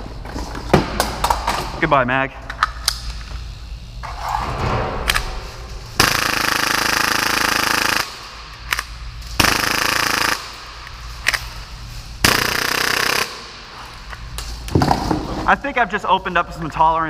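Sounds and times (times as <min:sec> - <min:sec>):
airsoft pistol firing bursts: 0:06.0 - 0:08.2, 0:09.4 - 0:10.6, 0:12.2 - 0:13.6.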